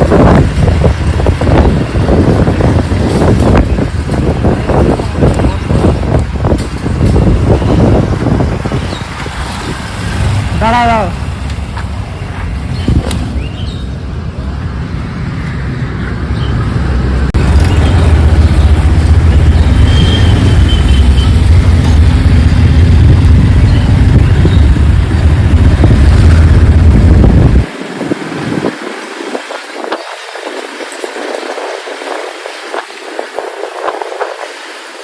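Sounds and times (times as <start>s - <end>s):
wind rushing: 0.0s - 11.1s, 12.6s - 35.0s
motorcycle engine rumble: 0.0s - 35.0s.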